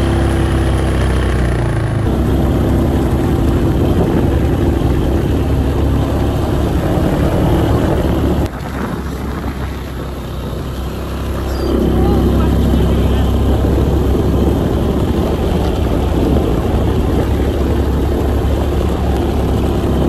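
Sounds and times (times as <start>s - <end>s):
quad engine running: 0.0s - 20.0s.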